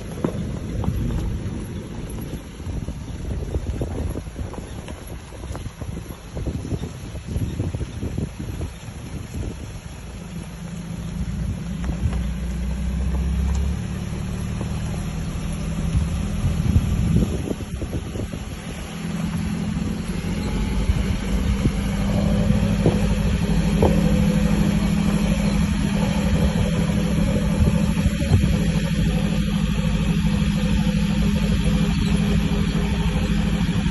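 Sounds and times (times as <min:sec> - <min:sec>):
vehicle engine running: 0:00.0 - 0:33.9.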